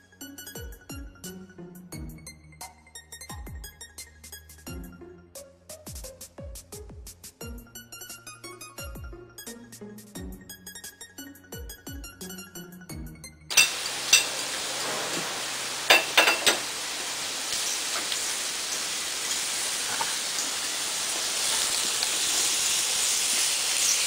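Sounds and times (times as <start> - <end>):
meat and mushrooms sizzling in a pan: 13.5 - 24.0.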